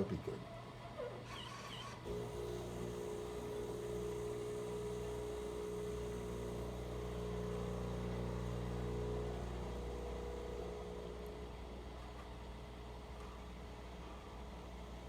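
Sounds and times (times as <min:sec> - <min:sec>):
coffee machine humming: 0:02.0 - 0:15.0.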